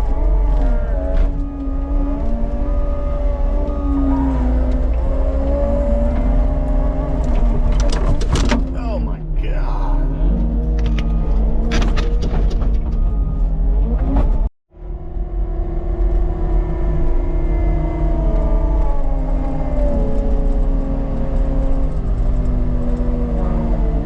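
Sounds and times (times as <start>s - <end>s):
diesel engine revving: 0.0s - 7.7s.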